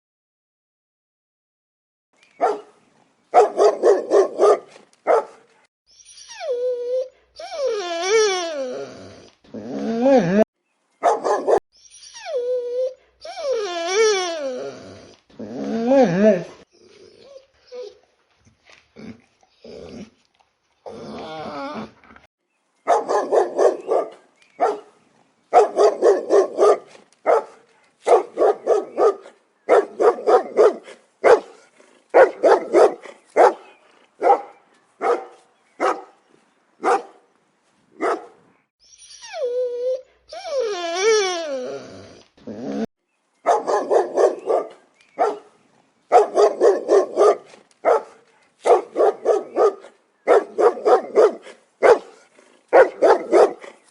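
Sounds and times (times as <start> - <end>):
dog barking: 2.4 - 5.5, 11.0 - 11.6, 22.9 - 24.9, 25.5 - 36.2, 36.8 - 37.2, 38.0 - 38.4, 43.5 - 45.5, 46.1 - 53.7.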